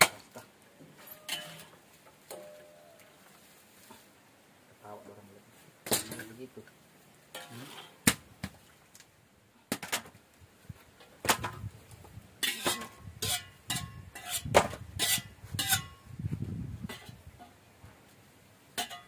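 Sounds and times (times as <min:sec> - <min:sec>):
utensils clinking on dishes: 0:01.0 - 0:01.7, 0:12.4 - 0:14.4, 0:18.8 - 0:19.0.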